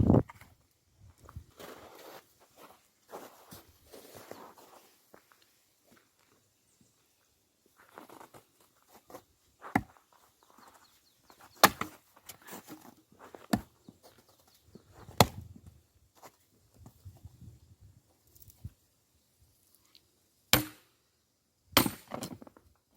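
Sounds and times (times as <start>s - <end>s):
scuffs of wood being handled: 1.6s - 5.3s
axe chopping firewood: 9.7s - 10.0s, 11.5s - 12.8s, 13.5s - 13.8s, 15.1s - 15.4s, 20.5s - 20.9s, 21.8s - 22.4s.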